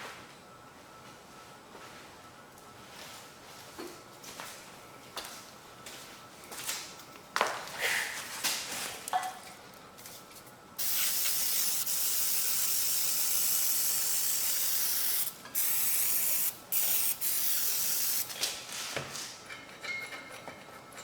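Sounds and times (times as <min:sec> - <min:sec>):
aerosol can spraying: 0:10.8 - 0:18.3.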